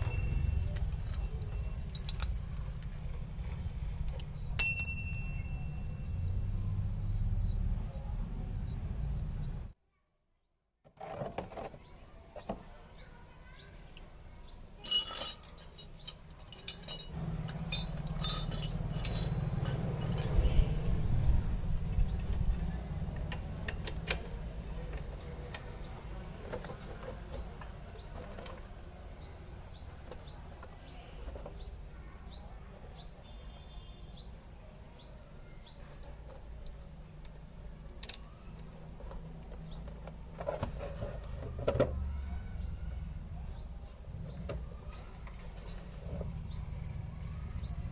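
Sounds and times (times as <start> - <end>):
metallic clinks: 0.0 - 2.4, 4.6 - 6.2, 14.8 - 20.7.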